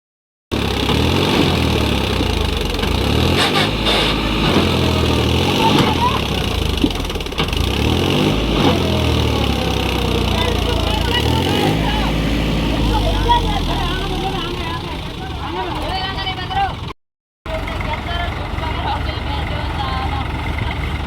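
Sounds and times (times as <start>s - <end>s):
tractor diesel engine revving: 0.5s - 16.9s, 17.5s - 21.0s.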